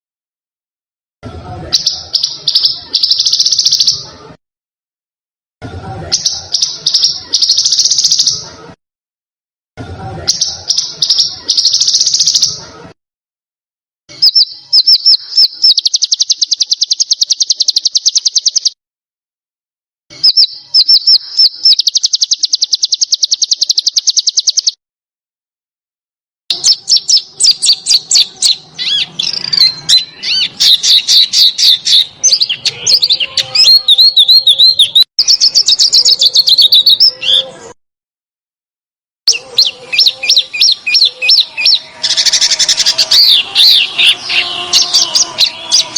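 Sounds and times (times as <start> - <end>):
small songbird singing trills: 14.1 - 18.8, 20.1 - 24.8, 39.3 - 45.9.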